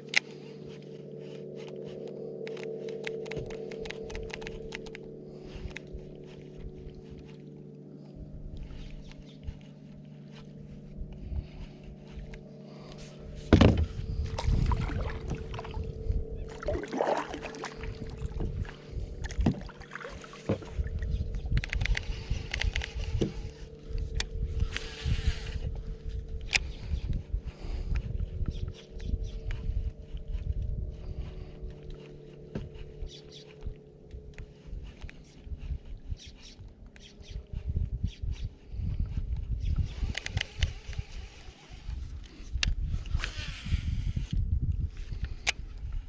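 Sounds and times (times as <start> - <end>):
steady low hum: 0.0 - 46.0
paddle strokes splashing: 16.5 - 20.8.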